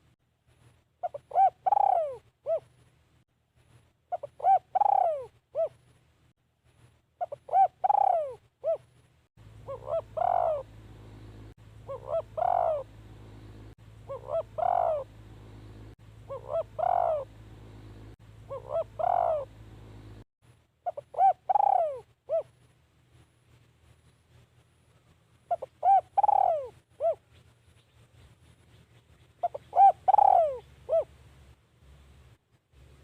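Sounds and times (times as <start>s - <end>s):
dove cooing: 1.0s - 2.7s, 4.1s - 5.8s, 7.2s - 8.9s, 9.6s - 20.2s, 20.8s - 22.6s, 25.5s - 27.3s, 29.4s - 31.2s
low hum: 8.9s - 20.7s.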